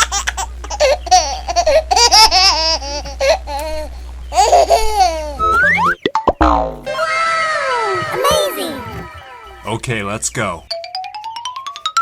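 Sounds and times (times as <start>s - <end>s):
sped-up cartoon giggling voice: 0.0s - 6.0s
steady low hum: 0.0s - 10.7s.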